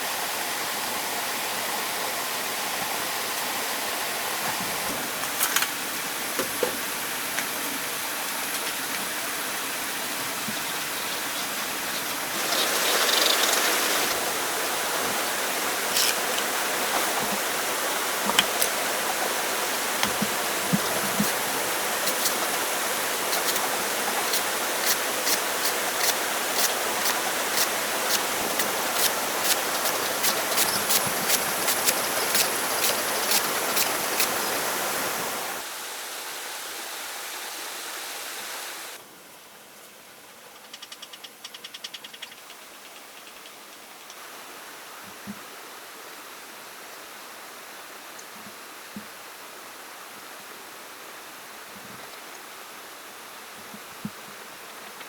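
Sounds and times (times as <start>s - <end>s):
flowing water rushing: 0.0s - 39.0s.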